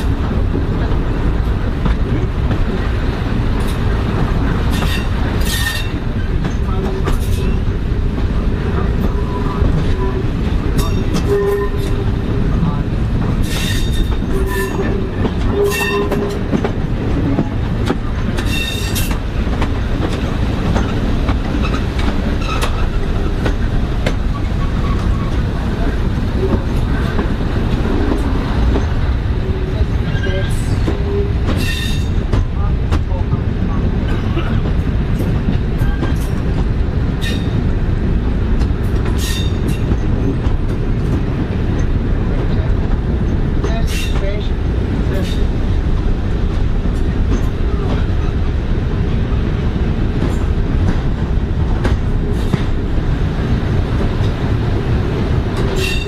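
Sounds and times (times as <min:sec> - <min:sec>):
rail joint clicks: 0:00.0 - 0:56.0
train rumbling: 0:00.0 - 0:56.0
train wheel squeals: 0:04.7 - 0:06.4, 0:13.4 - 0:16.4, 0:18.4 - 0:19.1, 0:29.7 - 0:32.2, 0:37.2 - 0:37.6, 0:39.1 - 0:40.3, 0:55.7 - 0:56.0.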